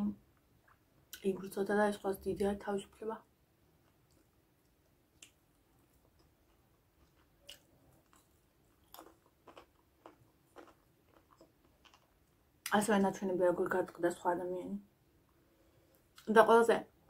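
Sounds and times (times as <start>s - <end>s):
chewing mouth clicks: 5.2s - 12.1s.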